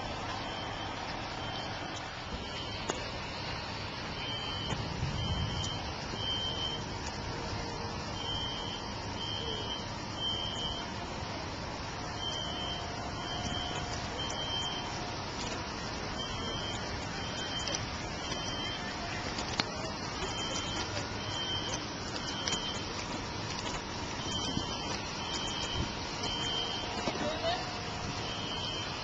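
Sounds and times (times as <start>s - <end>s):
background traffic: 0.0s - 29.0s
high-pitched electronic beeps: 4.2s - 6.9s, 8.2s - 10.9s, 12.1s - 15.0s, 16.1s - 19.0s, 20.2s - 22.9s, 24.2s - 27.0s, 28.2s - 29.0s.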